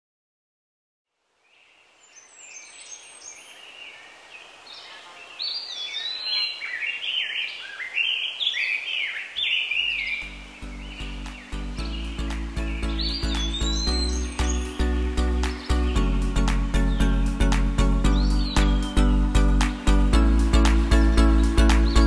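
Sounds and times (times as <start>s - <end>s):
birds singing: 1.5s - 22.0s
music with steady low bass: 10.0s - 22.0s.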